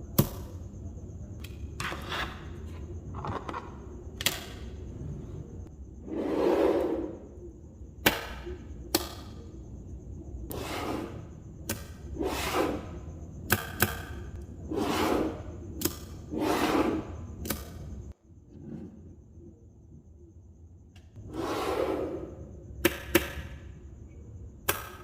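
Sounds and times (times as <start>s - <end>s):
balls rubbing swishes: 10.5s - 13.1s, 14.6s - 17.4s
magnetic balls snapping together: 15.8s - 16.2s.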